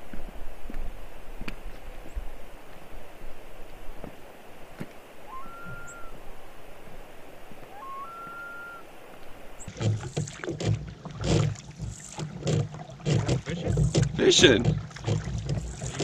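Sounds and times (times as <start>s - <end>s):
bird whistled calls: 5.2s - 6.4s, 7.7s - 8.9s
canoe paddle knocks: 9.7s - 16.0s.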